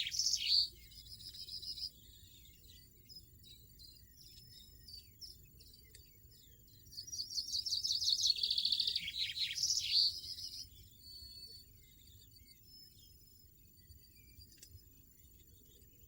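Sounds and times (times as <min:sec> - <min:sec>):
goldfinch twittering: 0:00.0 - 0:00.9, 0:07.0 - 0:10.6
faint bird chirps: 0:00.0 - 0:16.0.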